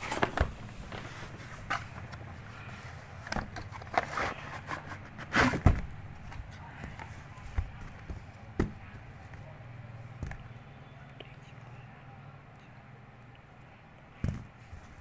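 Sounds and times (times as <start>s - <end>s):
packaging rustling and clicking: 0.0s - 8.3s.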